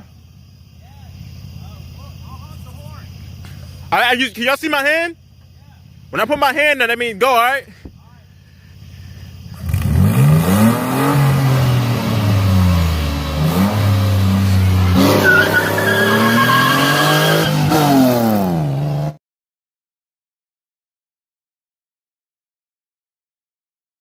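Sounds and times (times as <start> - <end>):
car engine revving through gears: 9.6 - 19.2.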